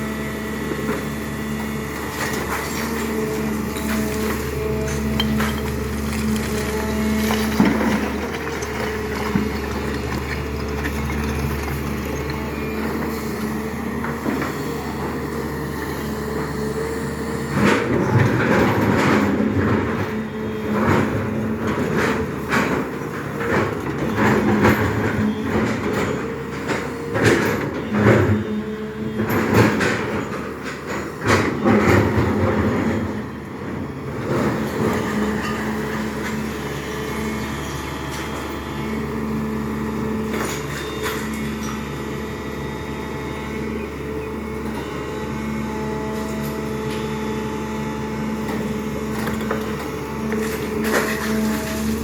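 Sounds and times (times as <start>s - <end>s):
diesel engine running: 0.0s - 52.0s
metallic clanks and knocks: 3.7s - 6.2s.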